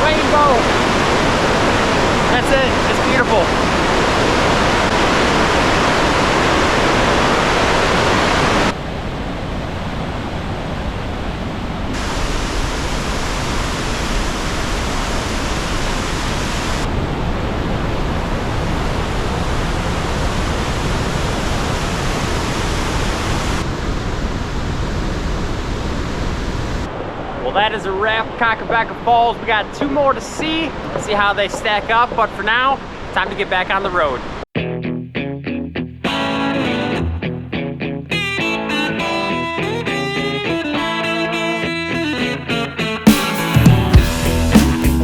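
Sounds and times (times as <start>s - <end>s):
waterfall roaring: 0.0s - 34.4s.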